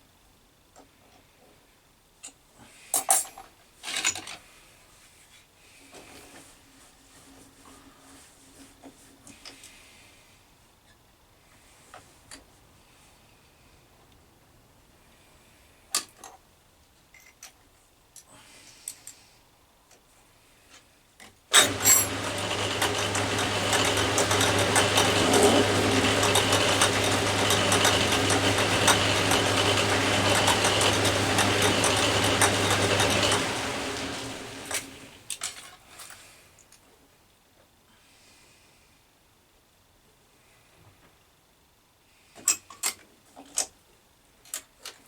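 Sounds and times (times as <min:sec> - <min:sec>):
metal lathe running: 0:21.5 - 0:35.2.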